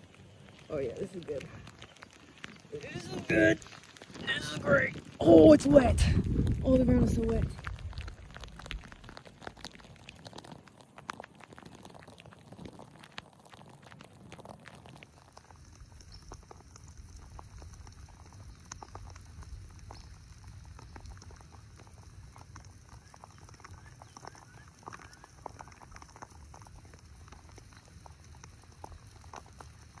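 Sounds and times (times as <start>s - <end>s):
rain drops pattering: 0.0s - 30.0s
steady low rumble: 2.6s - 9.0s.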